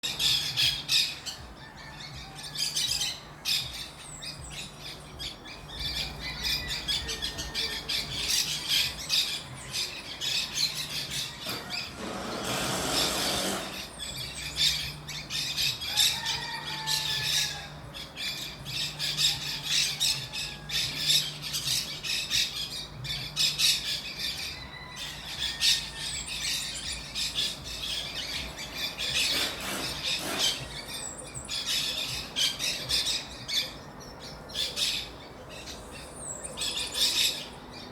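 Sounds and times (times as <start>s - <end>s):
flock of birds chattering: 0.0s - 37.9s.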